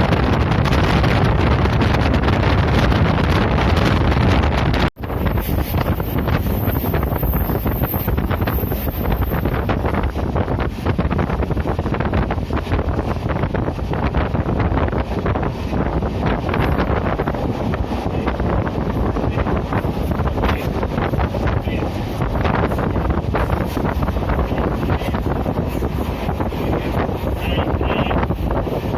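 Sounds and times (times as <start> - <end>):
train wheels rumbling on rails: 0.0 - 28.9
wind buffeting microphone: 0.0 - 28.9.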